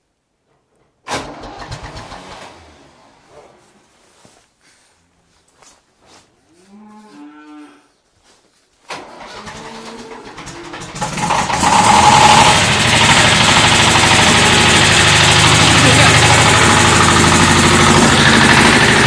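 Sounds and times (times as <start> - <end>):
tractor diesel engine starting: 1.0 - 4.2, 8.8 - 19.0
cow mooing: 6.5 - 8.0, 9.4 - 10.9.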